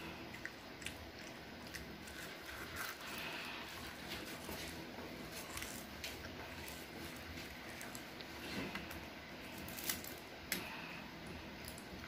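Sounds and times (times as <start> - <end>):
child chewing crunchy snack: 0.0 - 12.0
low steady hum: 0.0 - 12.0.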